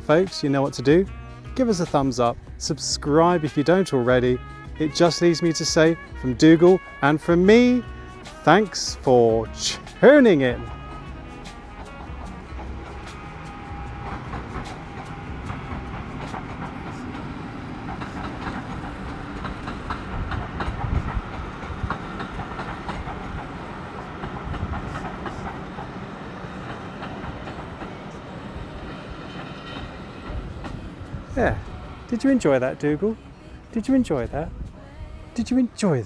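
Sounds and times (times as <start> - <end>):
train rumble: 0.0 - 35.8
train wheels clicking over rail joints: 10.6 - 33.4.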